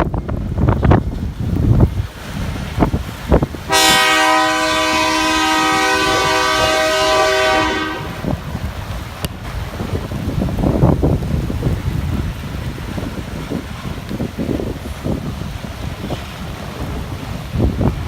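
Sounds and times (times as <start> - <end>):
wind buffeting microphone: 0.0 - 18.0
locomotive air horn: 3.7 - 8.4.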